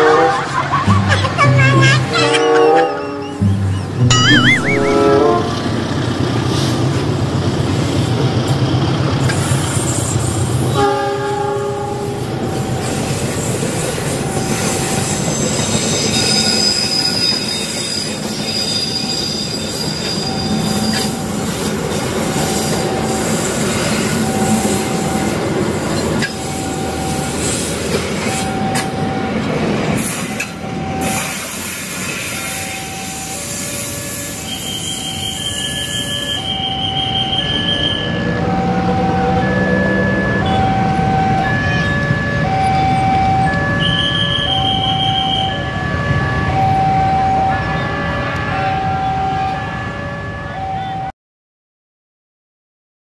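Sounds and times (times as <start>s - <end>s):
train horn blast: 0.0s - 0.4s, 4.9s - 5.9s, 10.7s - 12.1s
short recurring tone: 3.4s - 5.9s
thin wheel squeal: 32.8s - 38.2s.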